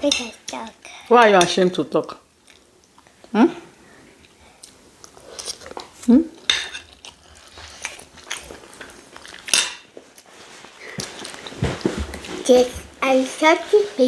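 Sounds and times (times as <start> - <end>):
cutlery clinking on plates: 6.5 - 7.0, 9.4 - 10.0.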